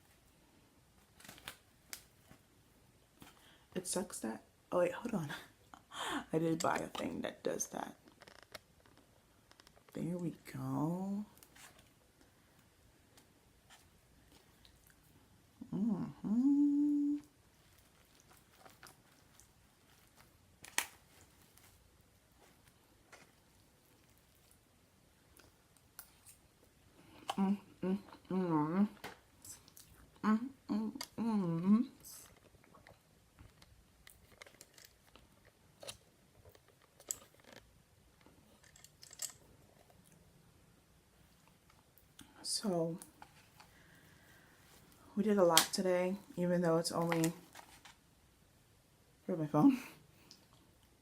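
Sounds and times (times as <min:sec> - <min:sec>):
person humming while eating: 0:15.6 - 0:17.3, 0:27.1 - 0:29.0, 0:30.2 - 0:32.2
person chewing food: 0:17.5 - 0:20.9.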